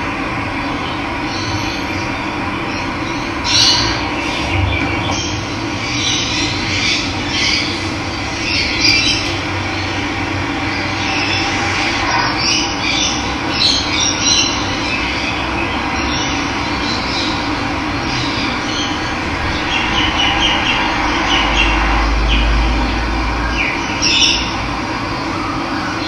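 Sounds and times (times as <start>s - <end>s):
birds chirping: 0.6s - 26.0s.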